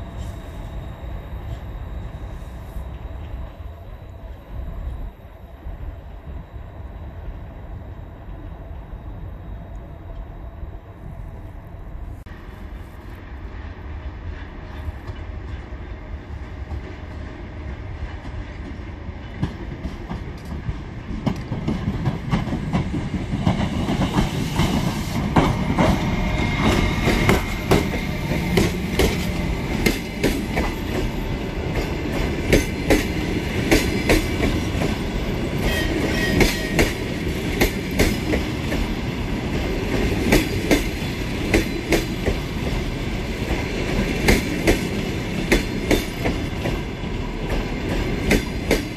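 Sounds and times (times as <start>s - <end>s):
train rumble: 0.0s - 48.9s
train wheels clicking over rail joints: 18.0s - 48.9s.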